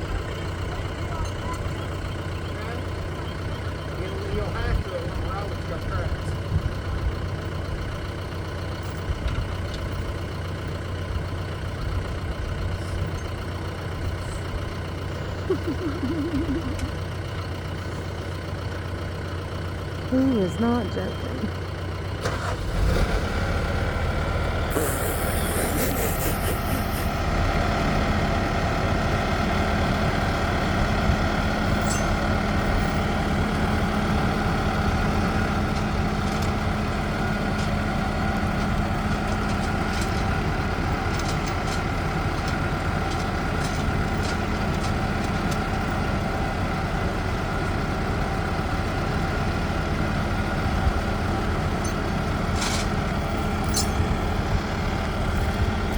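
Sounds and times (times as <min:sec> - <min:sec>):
heavy vehicle engine running: 0:00.0 - 0:55.9
brief hiss: 0:24.7 - 0:27.1.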